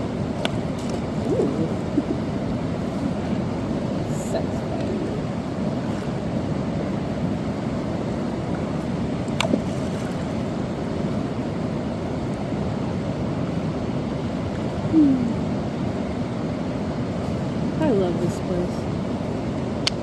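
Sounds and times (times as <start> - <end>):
river water rushing: 0.0 - 19.8.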